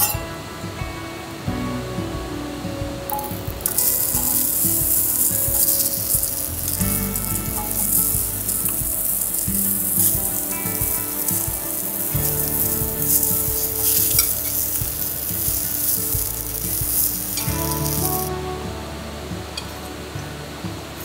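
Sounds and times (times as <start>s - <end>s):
background music: 0.0s - 21.0s
food sizzling in a pan: 3.1s - 18.4s.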